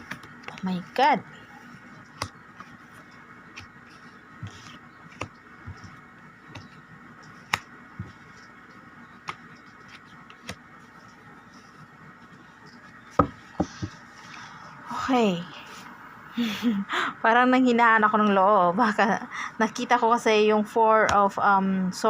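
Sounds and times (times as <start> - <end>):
cards tapping and flicking: 0.0 - 0.7, 2.1 - 11.1
faint background hum: 0.0 - 22.0.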